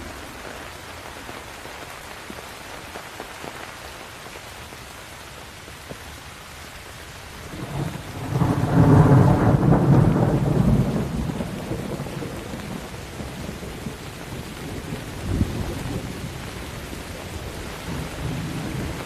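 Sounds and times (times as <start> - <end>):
steady rain: 0.0 - 19.0
thunder rumbling: 7.4 - 19.0.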